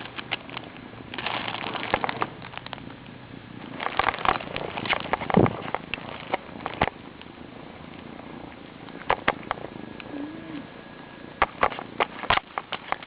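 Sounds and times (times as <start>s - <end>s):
kitten purring: 10.0s - 10.8s.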